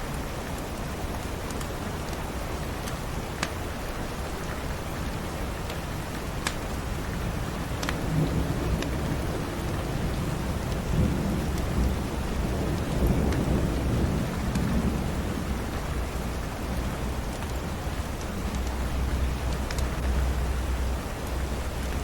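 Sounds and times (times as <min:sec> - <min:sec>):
steady rain: 0:00.0 - 0:22.0
fireplace crackles: 0:02.8 - 0:08.0
rumble of thunder: 0:07.1 - 0:22.0.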